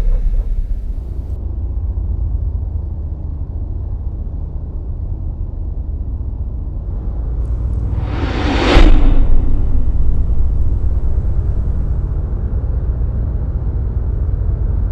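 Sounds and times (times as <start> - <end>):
deep low rumble: 0.0 - 1.4, 6.3 - 14.9
rising whoosh: 7.0 - 12.1.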